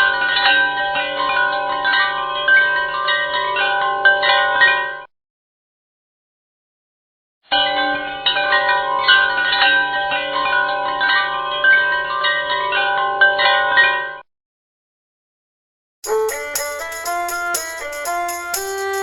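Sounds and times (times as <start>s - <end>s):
wind-chime tones: 16.0s - 19.0s.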